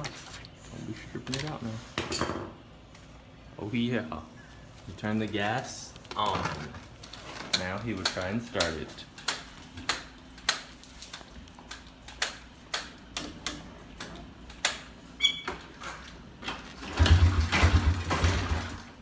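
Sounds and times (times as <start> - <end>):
brief squeak: 15.2 - 15.5.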